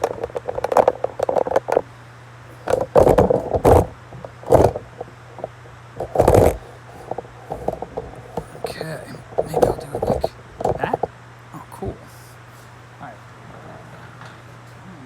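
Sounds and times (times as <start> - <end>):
steady low hum: 0.0 - 15.0
scraping rustling of handled objects: 2.5 - 11.1.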